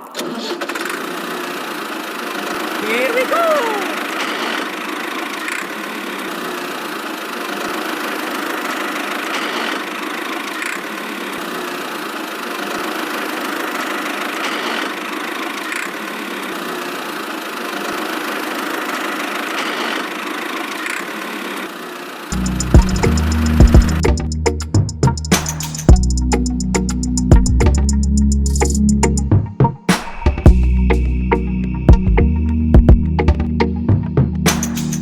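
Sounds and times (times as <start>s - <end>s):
small motor running: 0.3s - 24.0s.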